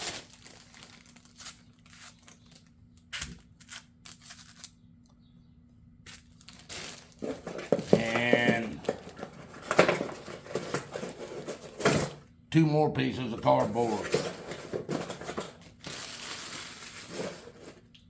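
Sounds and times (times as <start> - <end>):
packaging rustling: 0.0 - 2.7, 6.1 - 11.9, 13.5 - 17.9.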